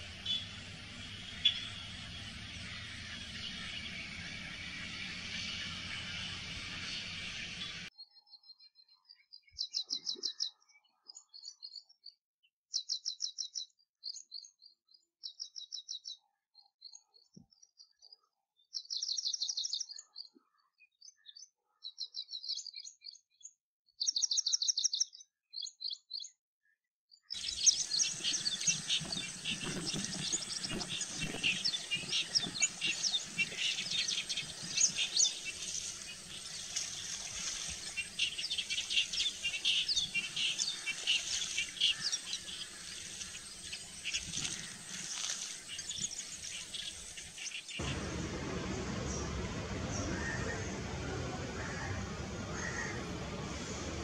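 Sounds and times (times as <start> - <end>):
bird rapid high-pitched calls: 0.0 - 7.9, 27.4 - 48.0
chorus of chirping birds: 0.0 - 26.3, 27.2 - 54.0.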